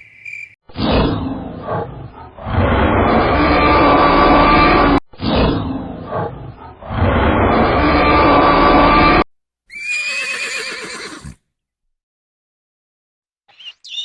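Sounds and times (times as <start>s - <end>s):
horse whinnying: 9.7s - 11.4s.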